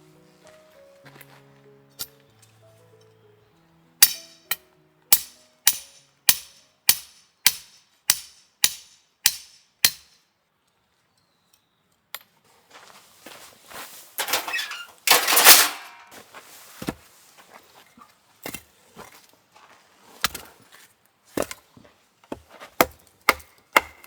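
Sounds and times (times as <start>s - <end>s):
soft background music: 0.0s - 7.0s
sharp ringing knocks: 4.0s - 4.6s.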